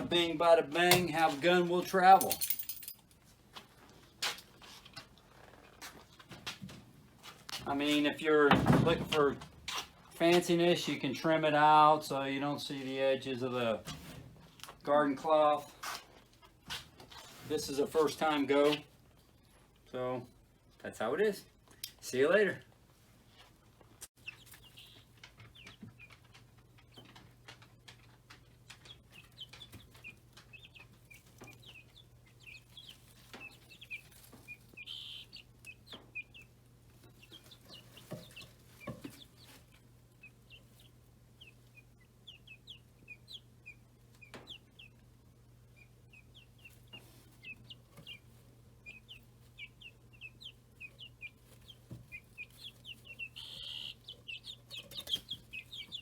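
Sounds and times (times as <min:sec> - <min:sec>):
chicks peeping: 0:24.2 - 0:56.0.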